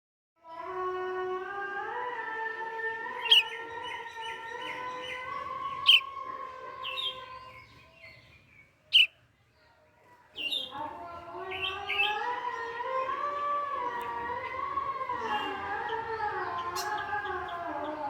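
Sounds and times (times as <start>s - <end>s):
bird chirping: 3.1s - 6.2s, 6.8s - 9.2s.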